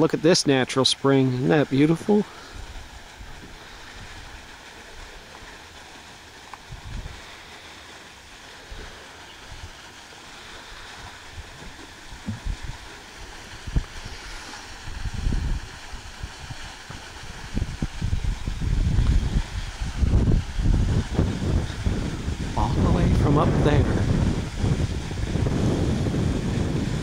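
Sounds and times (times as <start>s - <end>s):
running water rushing: 0.0s - 27.0s
wind buffeting microphone: 6.6s - 7.4s, 10.4s - 27.0s.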